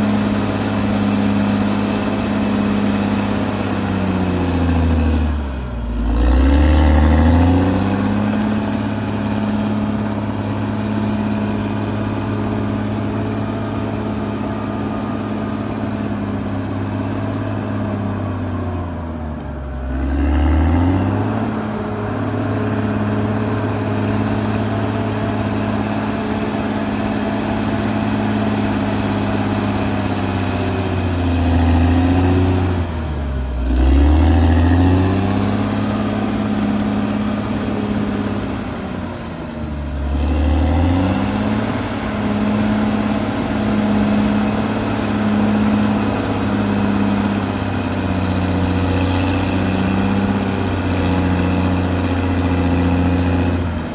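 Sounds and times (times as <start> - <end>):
bulldozer diesel engine working: 0.0 - 53.9.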